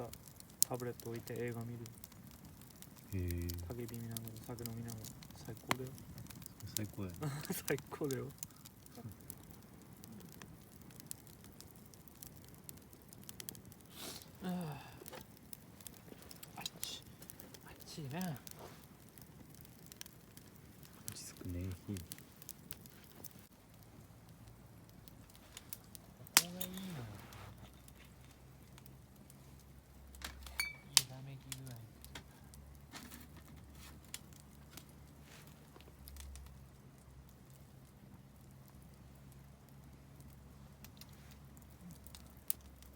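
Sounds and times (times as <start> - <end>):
campfire crackling and popping: 0.0 - 42.9
man exclaiming: 6.8 - 8.0.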